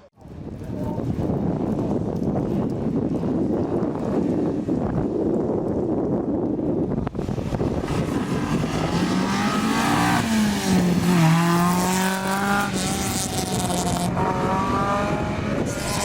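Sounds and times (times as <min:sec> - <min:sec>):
rally car engine racing: 0:07.3 - 0:16.0.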